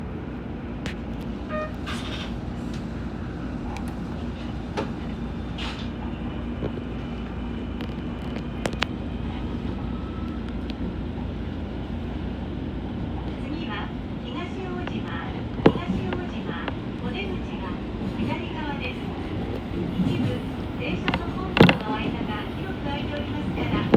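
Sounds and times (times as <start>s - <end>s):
train running with low rumble: 0.0s - 23.9s
short beep: 1.5s - 1.8s.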